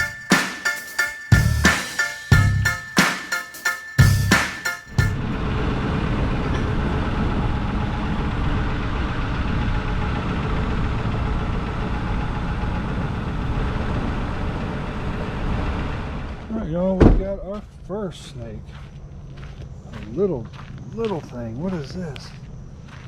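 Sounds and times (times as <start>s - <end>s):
road noise: 4.9s - 17.8s.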